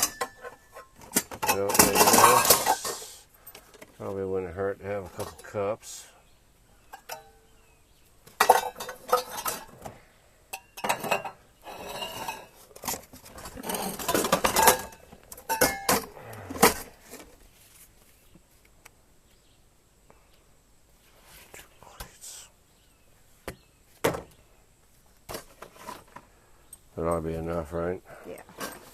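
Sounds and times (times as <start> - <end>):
cups and cutlery clattering: 0.0 - 3.1, 6.9 - 7.4, 8.4 - 9.8, 10.5 - 16.8.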